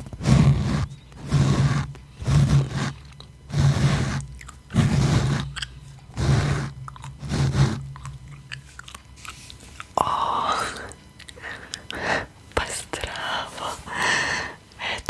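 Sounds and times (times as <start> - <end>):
gum chewing wet chews: 1.2 - 10.0, 10.8 - 12.0.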